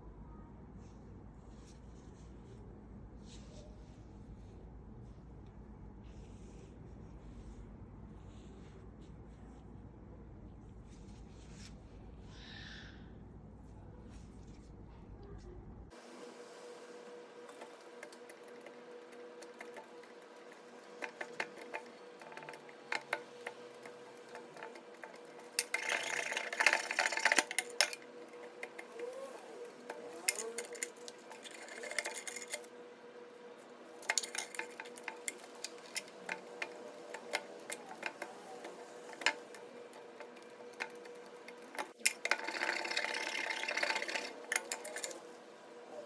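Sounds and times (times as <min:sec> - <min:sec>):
metal chisel clinking and scraping: 0:19.4 - 0:32.7, 0:34.0 - 0:45.2.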